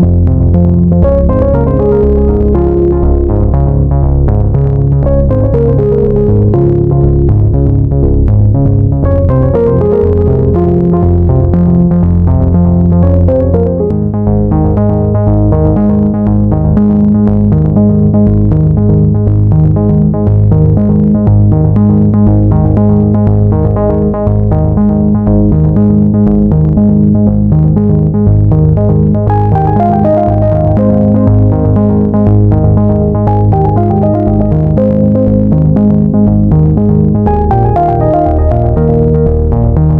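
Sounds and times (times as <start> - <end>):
synthesizer music with steady beat: 0.0 - 39.9.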